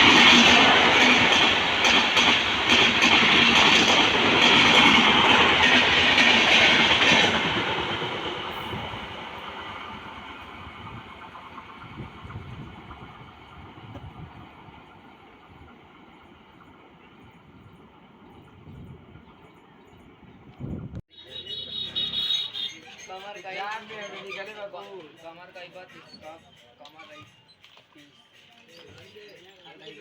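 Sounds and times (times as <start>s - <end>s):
train wheels clattering over rails: 0.0s - 14.6s.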